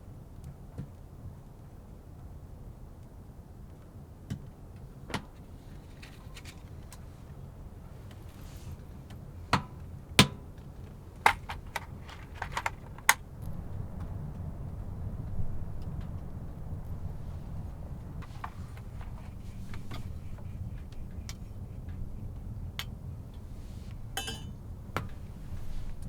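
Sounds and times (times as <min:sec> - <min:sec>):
sharp clicks and knocks: 0:11.2 - 0:13.6
strong wind rumble: 0:11.2 - 0:26.0.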